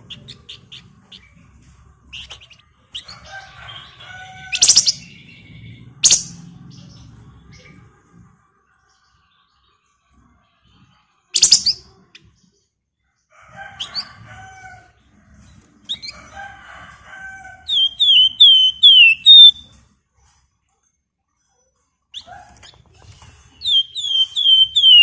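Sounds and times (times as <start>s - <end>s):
songbird singing: 4.5s - 6.9s, 11.4s - 11.8s, 17.7s - 19.6s, 23.6s - 25.0s.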